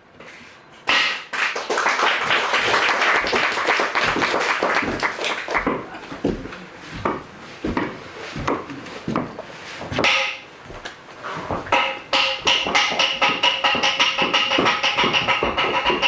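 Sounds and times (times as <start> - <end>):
percussion strokes: 11.4 - 16.0.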